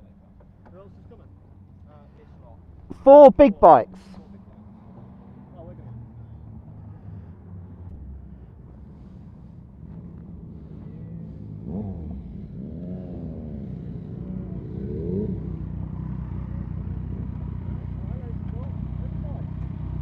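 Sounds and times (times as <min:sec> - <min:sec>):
motorcycle engines revving: 0:07.3 - 0:20.0.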